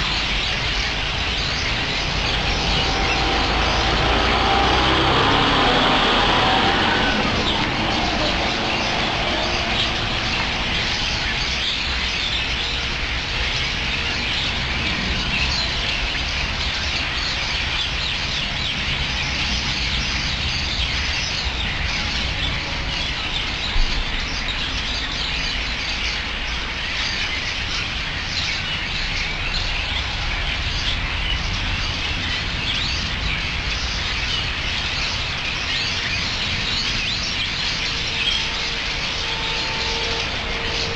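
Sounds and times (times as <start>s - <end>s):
low rumble: 0.0s - 17.5s, 34.8s - 40.9s
flock of birds chirping: 0.0s - 40.9s.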